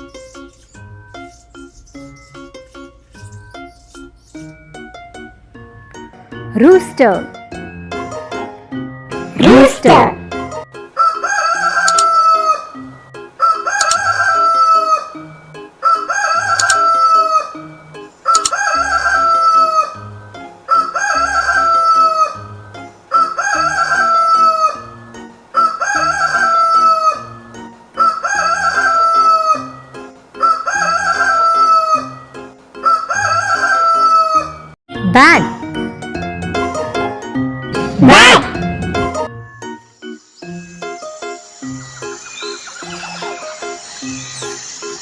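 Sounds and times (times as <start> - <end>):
rooster crowing: 11.0 - 12.8, 13.4 - 15.2, 15.8 - 17.6, 18.2 - 20.1, 20.7 - 22.5, 23.1 - 27.4, 28.0 - 29.8, 30.4 - 34.8.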